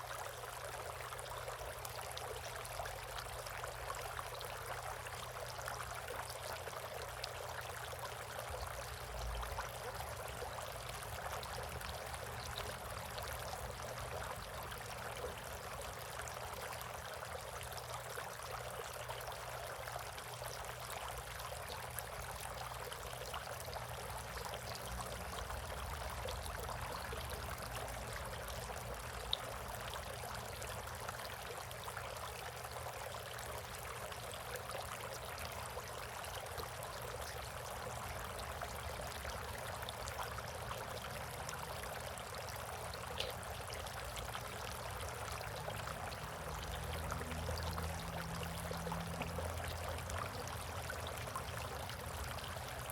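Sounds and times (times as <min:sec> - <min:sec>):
water trickling into bird bath: 0:00.0 - 0:52.9.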